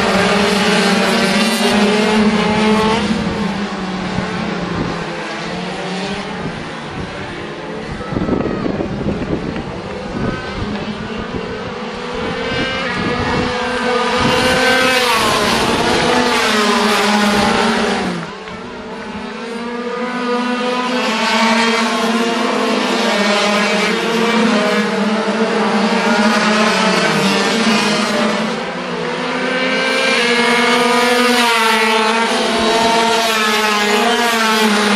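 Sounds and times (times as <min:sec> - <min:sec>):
racing motorcycles passing: 0:00.0 - 0:34.9.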